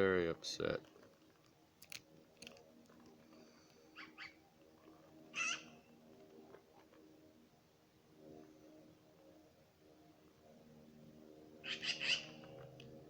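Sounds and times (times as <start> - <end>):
faint short bird calls: 5.4 - 5.8, 11.6 - 12.4.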